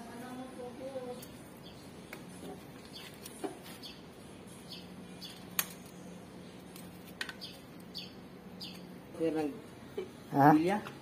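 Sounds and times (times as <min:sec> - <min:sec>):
small bird chirping: 0:01.1 - 0:05.5, 0:07.3 - 0:08.9.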